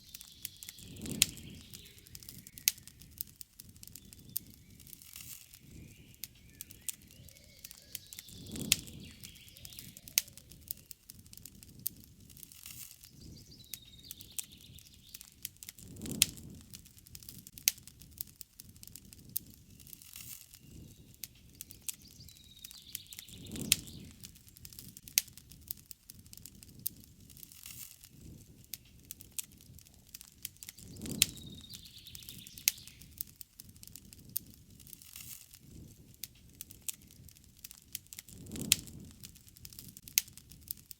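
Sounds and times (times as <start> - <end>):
birds chirping faintly: 0.0 - 11.3, 12.7 - 16.6, 19.4 - 25.1, 26.9 - 33.4
campfire crackling and popping: 0.0 - 40.9
flame rushes: 0.1 - 40.9.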